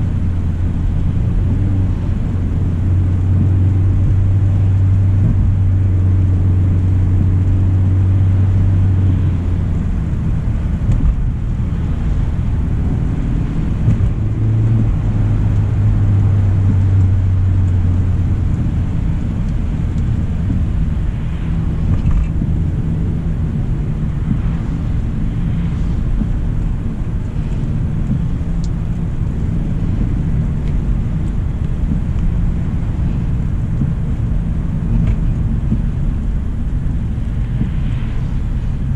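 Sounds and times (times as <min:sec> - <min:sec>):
low hum: 0:00.0 - 0:38.9
road rumble: 0:00.0 - 0:38.9.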